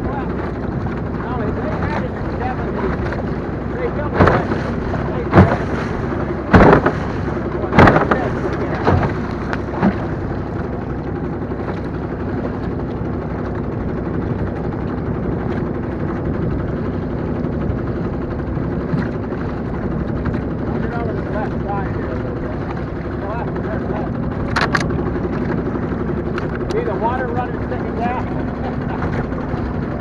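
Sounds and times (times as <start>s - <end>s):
outboard motor running: 0.0s - 30.0s
loud thumps: 4.1s - 10.1s.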